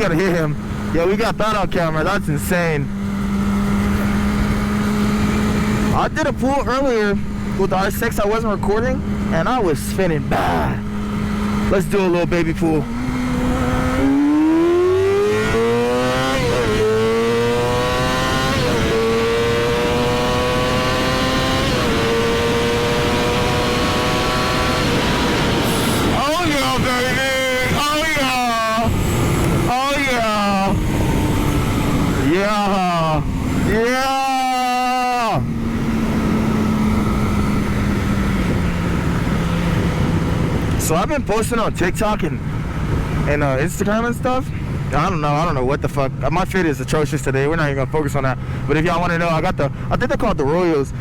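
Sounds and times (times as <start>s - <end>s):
motorcycle engine accelerating: 0.0s - 45.6s
wind and road rush: 0.0s - 51.0s.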